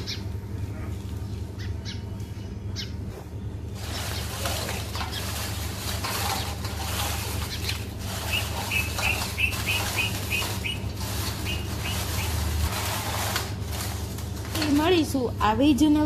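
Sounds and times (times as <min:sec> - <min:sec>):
small bird chirping: 0:00.0 - 0:04.5, 0:07.4 - 0:12.4
steady low hum: 0:00.0 - 0:16.0.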